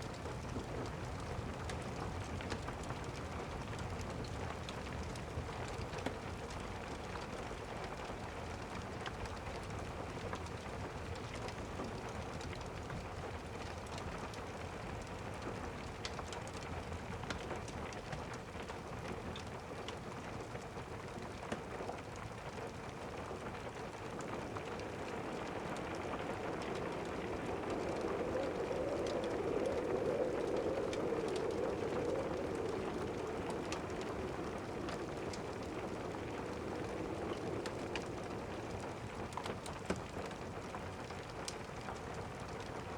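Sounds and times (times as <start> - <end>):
steady rain: 0.0 - 42.9
crackling ticks: 21.5 - 42.9.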